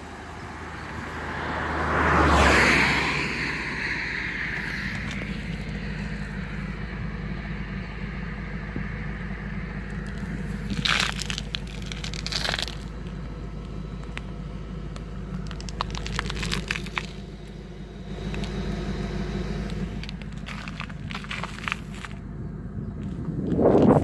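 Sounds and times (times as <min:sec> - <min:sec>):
car engine humming: 0:00.0 - 0:24.0
crunching crackling clicks: 0:09.6 - 0:22.3.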